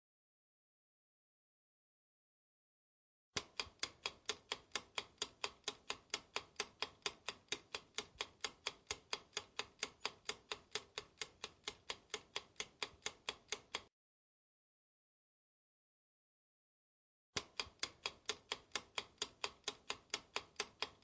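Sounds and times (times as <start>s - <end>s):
steady ticking: 3.4s - 13.9s, 17.4s - 21.0s.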